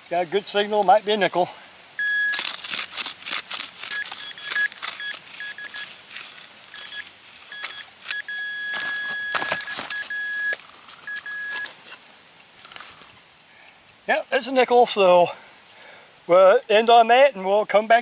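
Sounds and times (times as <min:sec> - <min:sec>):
digging in soil: 0:00.0 - 0:16.0
metal detector pinpointer beeping: 0:02.0 - 0:02.4, 0:03.8 - 0:06.0, 0:06.7 - 0:11.7.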